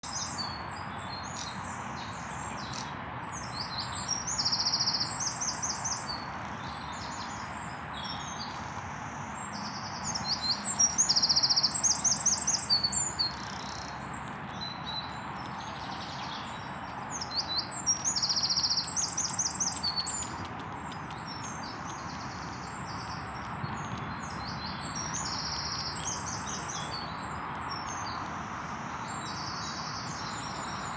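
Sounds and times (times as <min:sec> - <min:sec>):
songbird trilling song: 0:00.0 - 0:30.9
birds chirping: 0:09.4 - 0:30.9.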